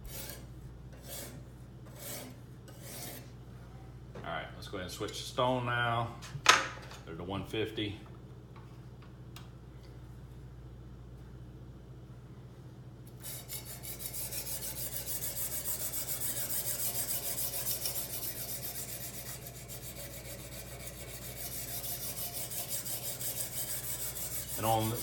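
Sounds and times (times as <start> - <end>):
sharpening stone rubbing on knife: 0.0 - 0.4, 1.0 - 3.3, 13.2 - 25.0.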